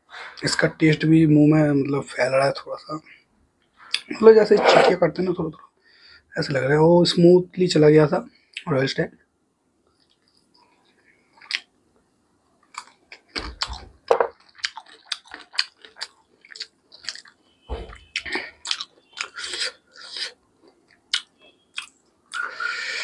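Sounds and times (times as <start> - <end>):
man chewing with wet smacks: 9.8 - 11.7, 12.6 - 22.5.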